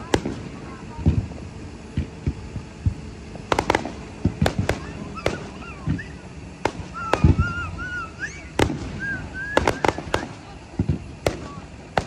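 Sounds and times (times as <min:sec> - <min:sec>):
fireworks cracking: 0:00.0 - 0:12.0
deep firework thud: 0:08.6 - 0:12.0.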